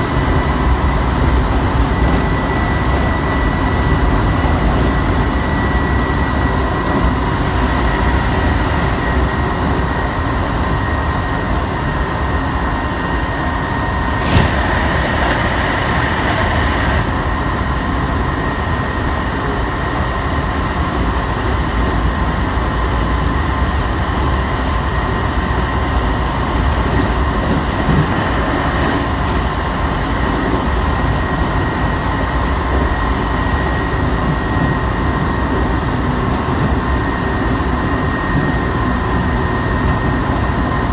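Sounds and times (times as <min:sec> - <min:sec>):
electric train whine: 0:00.0 - 0:40.9
train wheels rumbling on rail: 0:00.0 - 0:40.9
rushing noise: 0:12.4 - 0:19.1.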